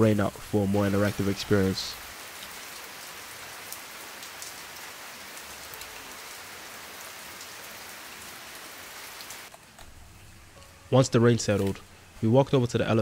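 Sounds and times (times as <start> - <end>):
raindrops ticking: 0.0 - 7.9
steady rain hiss: 0.0 - 13.0.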